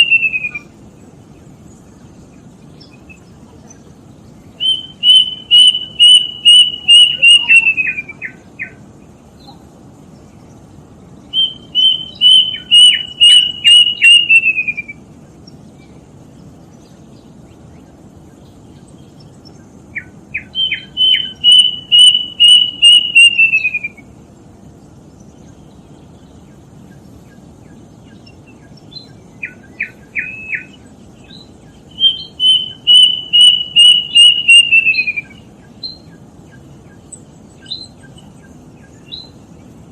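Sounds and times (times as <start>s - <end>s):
cuckoo whistled song: 0.0s - 0.7s, 4.6s - 8.8s, 11.3s - 15.0s, 20.0s - 24.2s, 29.0s - 36.6s, 37.6s - 39.4s.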